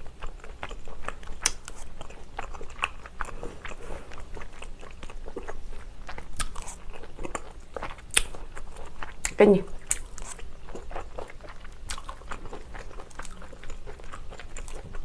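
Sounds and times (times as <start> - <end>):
chewing and biting food: 0.0 - 15.0.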